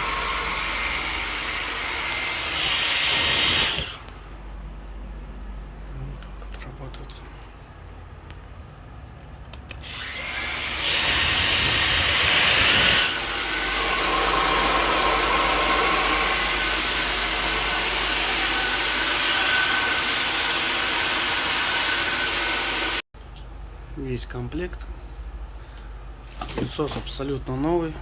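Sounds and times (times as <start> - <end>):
cordless vacuum cleaner whining: 0.0 - 4.1, 9.8 - 23.0.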